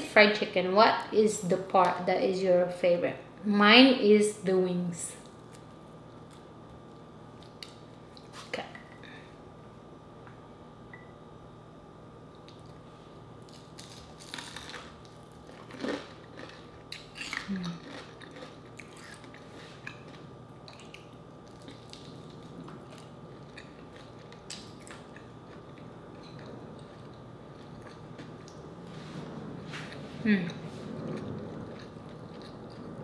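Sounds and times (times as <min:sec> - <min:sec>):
crispy fried chicken crunching: 0:13.4 - 0:28.5
quiet chewing with small clicks: 0:15.0 - 0:28.7, 0:29.9 - 0:33.0.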